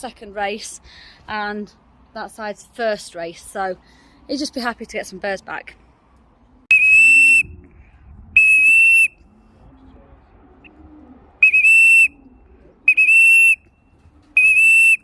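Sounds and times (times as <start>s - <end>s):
whistle blasts: 6.7s - 7.6s, 8.4s - 9.2s, 11.4s - 12.3s, 12.9s - 13.7s, 14.4s - 15.0s.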